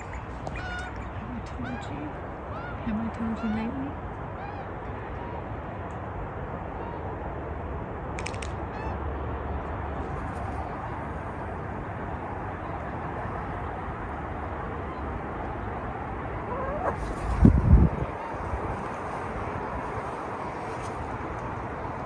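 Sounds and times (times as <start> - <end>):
strong wind on microphone: 15.8 - 20.7.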